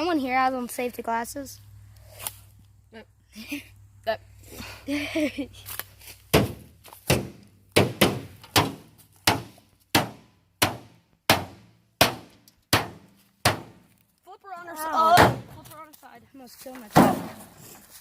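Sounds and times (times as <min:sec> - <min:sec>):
sledgehammer pounding metal casing: 0:06.3 - 0:13.9, 0:15.1 - 0:15.6, 0:16.9 - 0:17.5.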